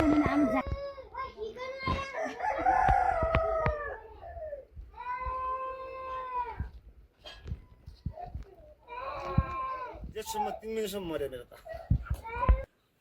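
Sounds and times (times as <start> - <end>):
rooster crowing: 2.2 - 4.3.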